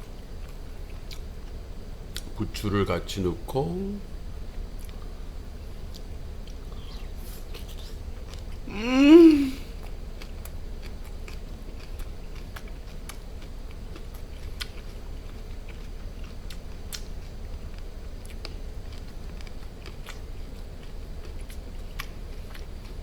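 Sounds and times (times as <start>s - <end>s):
man chewing crunchy food: 0.3s - 2.3s, 4.7s - 23.0s
man humming mmm: 8.7s - 9.8s.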